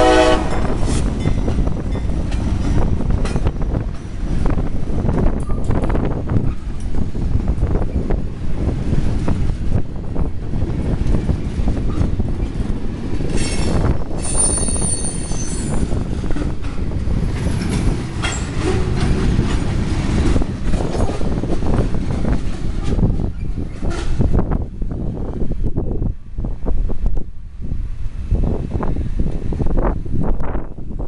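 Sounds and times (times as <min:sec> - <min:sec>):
freight train wheels rumbling: 0:00.0 - 0:31.0
high-pitched wheel squeal: 0:14.2 - 0:15.9.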